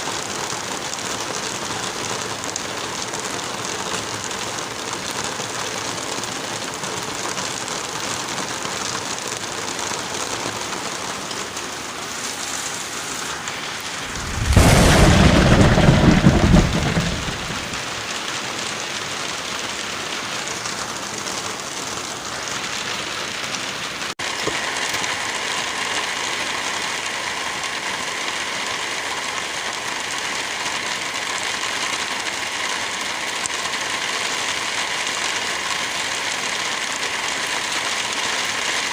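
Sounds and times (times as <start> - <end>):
steady rain: 0.0 - 38.9
thunderclap with rumble: 13.8 - 18.3.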